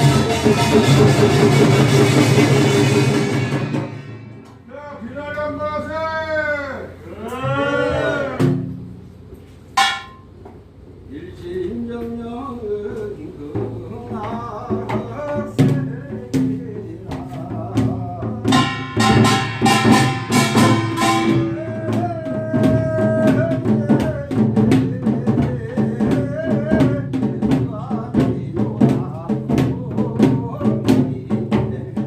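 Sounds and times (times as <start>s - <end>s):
drums: 0.0s - 32.0s
small gongs clanging: 9.8s - 10.4s, 18.5s - 21.8s.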